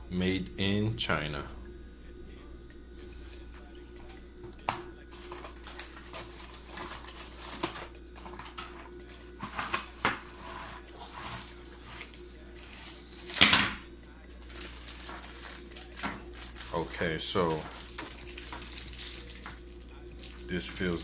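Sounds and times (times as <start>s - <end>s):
packaging rustling: 5.1s - 8.8s, 14.4s - 20.5s.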